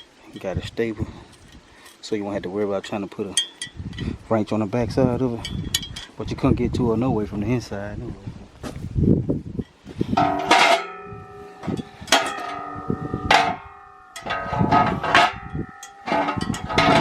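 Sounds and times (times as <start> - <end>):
steel parts clanking: 3.2 - 4.1, 9.6 - 17.0.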